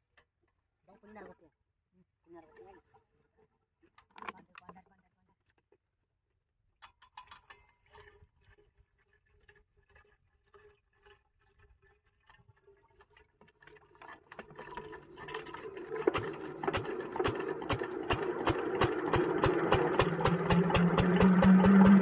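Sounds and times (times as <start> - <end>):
diesel engine firing beats: 17.7 - 22.0.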